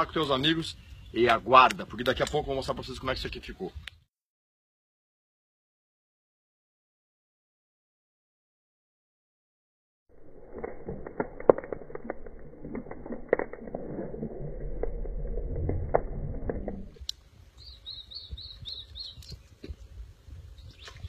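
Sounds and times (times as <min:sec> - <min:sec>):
campfire crackling and snapping: 0:10.2 - 0:15.0, 0:15.6 - 0:19.8
bird chirping: 0:17.5 - 0:19.7.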